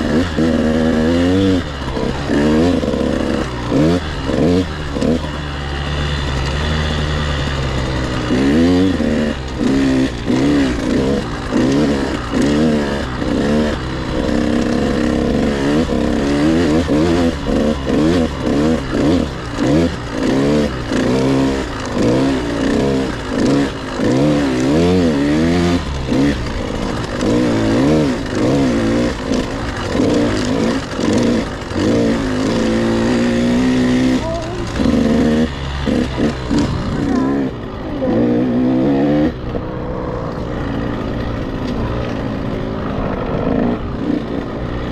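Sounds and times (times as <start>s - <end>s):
motocross bike engine revving: 0.0s - 44.9s.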